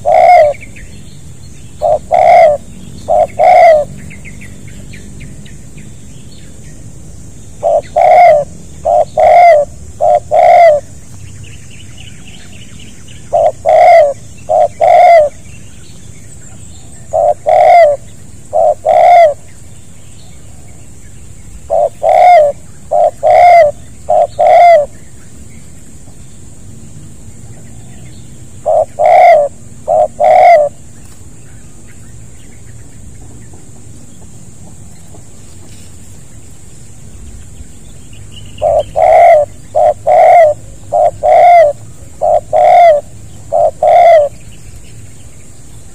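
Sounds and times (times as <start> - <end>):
dove cooing: 0.0 - 0.8, 1.8 - 4.0, 7.6 - 11.0, 13.3 - 15.4, 16.8 - 19.5, 21.6 - 25.0, 28.6 - 30.9, 38.6 - 44.4.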